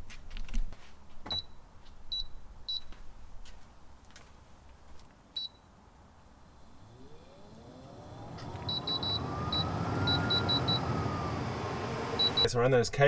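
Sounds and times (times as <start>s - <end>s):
motor whine and whirring hum: 6.4s - 12.5s
short high beeps: 12.2s - 12.5s.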